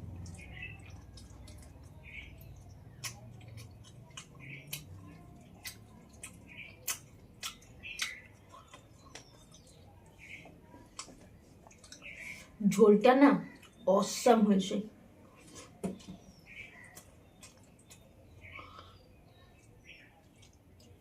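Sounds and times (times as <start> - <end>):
chewing food: 0.0 - 12.6, 13.4 - 13.9, 15.1 - 21.0
wet mouth clicks and smacks: 3.0 - 9.3.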